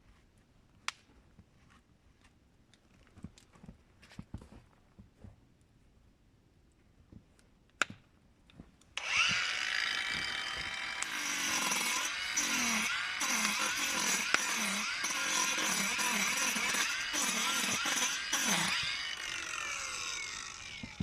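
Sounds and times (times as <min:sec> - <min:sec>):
power tool running: 0:09.0 - 0:21.0.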